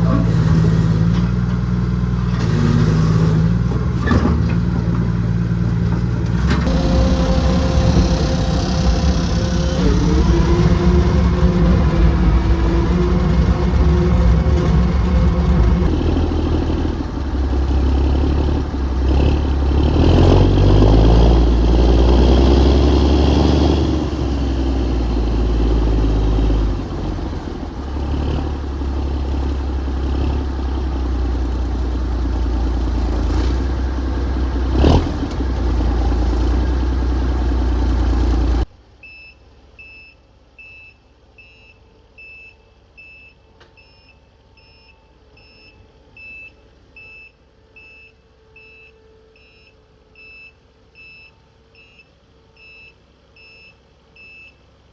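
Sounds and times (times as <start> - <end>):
diesel engine revving: 0.0 - 38.7.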